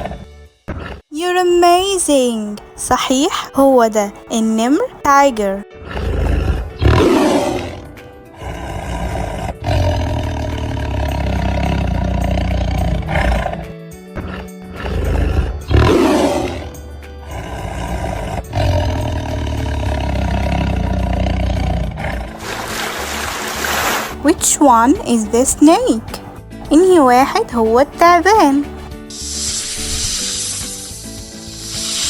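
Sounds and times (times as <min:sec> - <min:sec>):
tiger roaring and growling: 0:00.0 - 0:01.0, 0:05.7 - 0:26.6
background music: 0:00.0 - 0:32.0.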